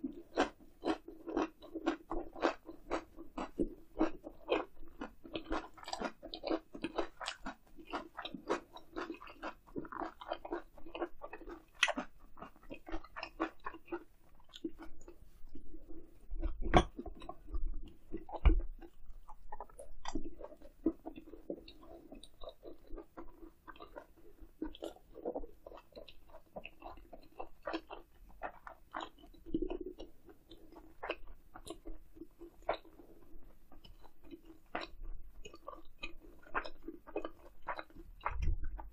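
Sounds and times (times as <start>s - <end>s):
close chewing and biting: 0.0s - 38.9s.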